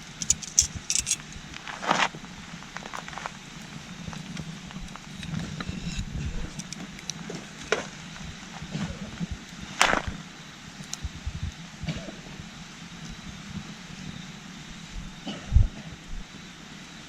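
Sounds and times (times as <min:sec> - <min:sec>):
campfire crackling and popping: 0:00.0 - 0:05.7, 0:06.5 - 0:11.6.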